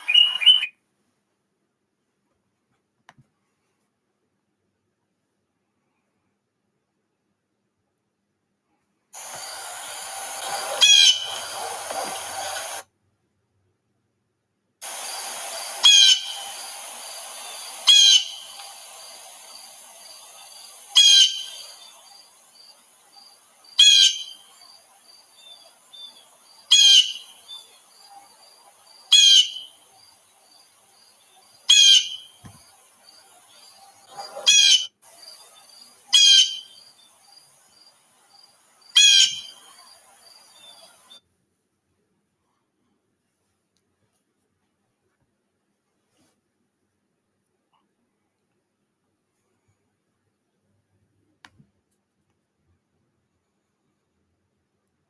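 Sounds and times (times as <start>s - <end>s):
bird harsh call: 0.0s - 0.7s, 9.2s - 12.8s, 14.8s - 41.2s
faint rapid chirping: 0.0s - 0.7s, 9.2s - 12.8s, 14.8s - 41.2s.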